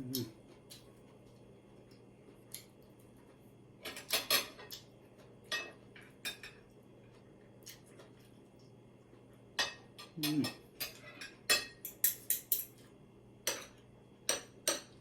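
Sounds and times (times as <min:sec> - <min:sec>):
faint steady hum: 0:00.0 - 0:15.0
utensils clinking against dishes: 0:03.8 - 0:04.8, 0:09.6 - 0:12.9, 0:13.5 - 0:15.0.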